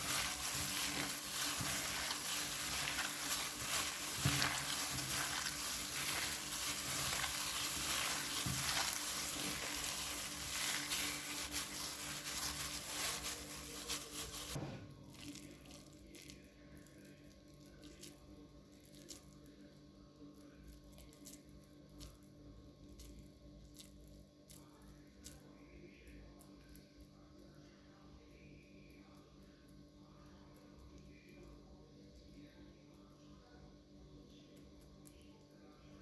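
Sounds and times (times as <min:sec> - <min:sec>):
food sizzling in a hot pan: 0:00.0 - 0:14.6.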